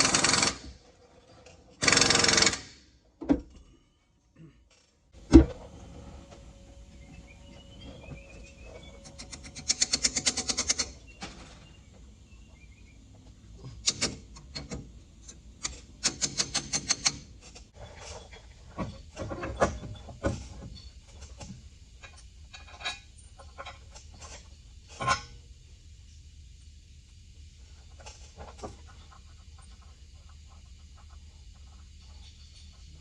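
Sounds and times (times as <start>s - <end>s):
sharp clicks of tool on metal: 13.8s - 17.2s.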